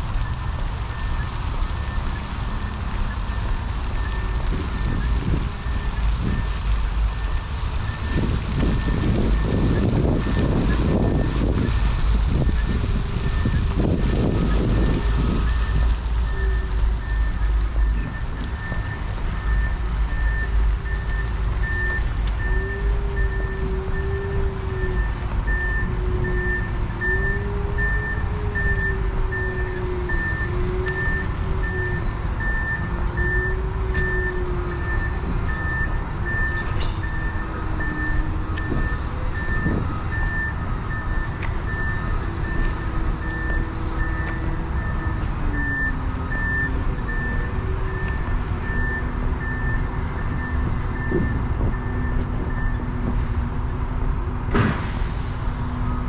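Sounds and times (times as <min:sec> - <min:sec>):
low rumble: 0:00.0 - 0:56.0
wavering engine-like hum: 0:00.0 - 0:56.0
reversing alarm beeps: 0:00.2 - 0:53.1.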